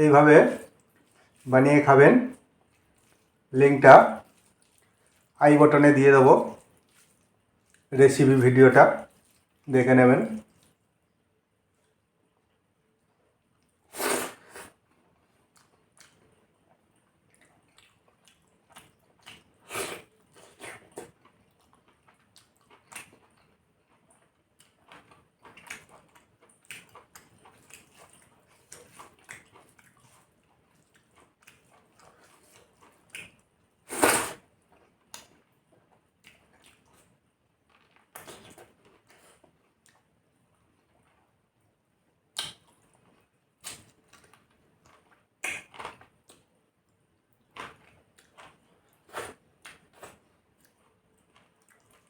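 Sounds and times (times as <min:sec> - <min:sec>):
chewing and mouth noises: 0:04.0 - 0:05.4, 0:06.4 - 0:07.9, 0:10.3 - 0:10.8, 0:13.6 - 0:41.3, 0:42.3 - 0:52.0
mouth smacks: 0:45.4 - 0:45.9.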